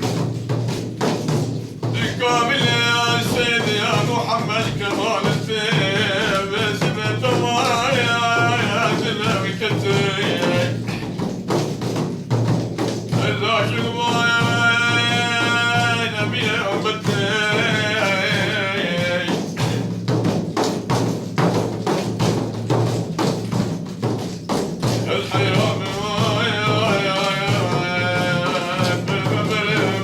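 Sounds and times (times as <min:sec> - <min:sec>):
hand percussion: 0:00.0 - 0:30.0
man singing devotional song: 0:01.8 - 0:11.4, 0:13.0 - 0:20.4, 0:24.8 - 0:30.0.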